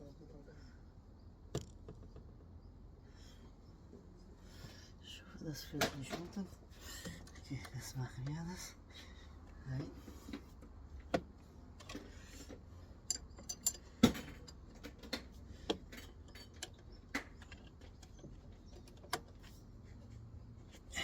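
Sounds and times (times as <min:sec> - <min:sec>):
metallic clinks of hand tools: 0:13.1 - 0:14.8.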